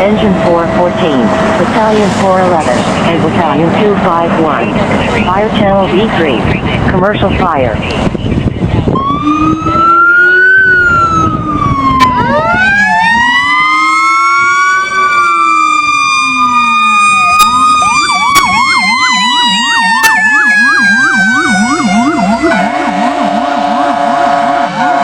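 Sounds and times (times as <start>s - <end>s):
electronic siren wailing and yelping: 7.7s - 25.0s
mechanical siren winding up: 9.0s - 24.4s.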